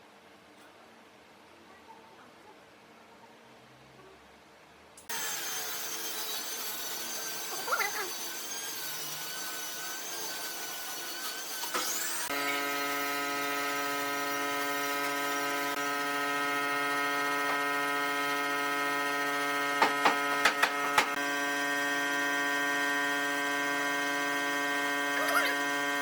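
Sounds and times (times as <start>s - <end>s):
electric buzzing hum: 12.3s - 26.0s.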